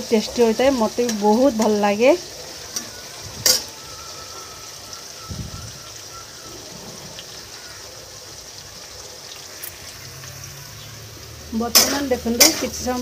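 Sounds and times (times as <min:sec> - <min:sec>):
potatoes sizzling in hot oil: 0:00.0 - 0:13.0
metal spatula clinking on pan: 0:02.7 - 0:03.7.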